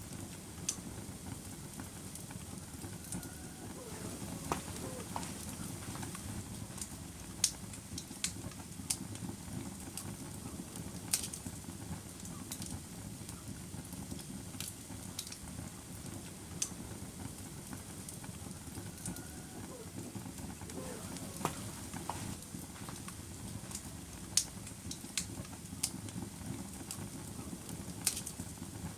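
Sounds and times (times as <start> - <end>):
wood fire crackling: 0.0 - 28.9.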